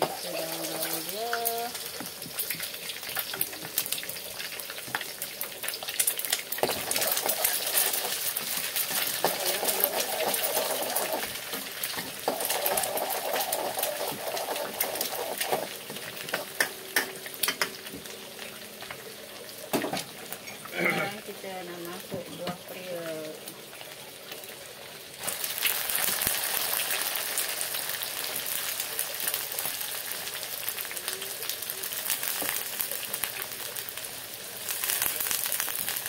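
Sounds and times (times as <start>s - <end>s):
egg and onion sizzling in oil: 0.0s - 36.0s.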